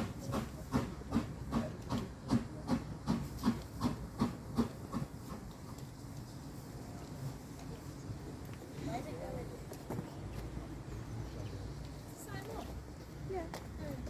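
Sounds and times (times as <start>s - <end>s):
steam locomotive chuffing: 0.0s - 5.9s.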